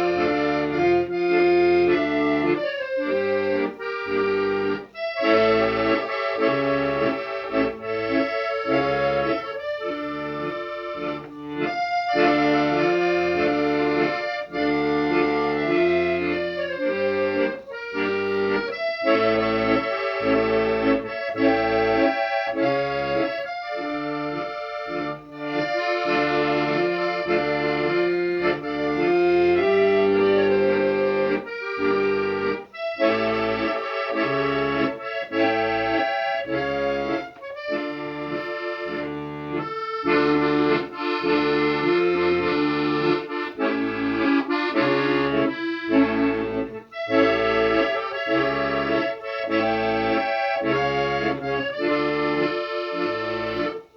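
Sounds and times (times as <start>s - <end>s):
accordion music: 0.0s - 53.9s.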